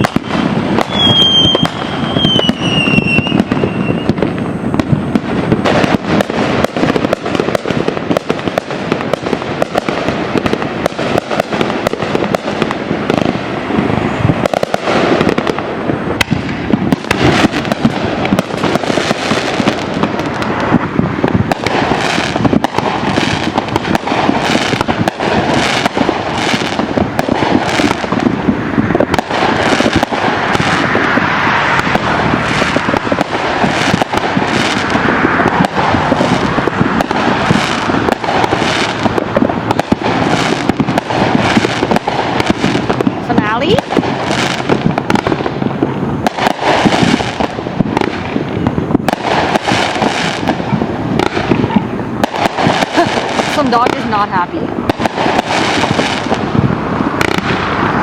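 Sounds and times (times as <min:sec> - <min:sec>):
fireworks crackling and popping: 0:00.0 - 0:58.0.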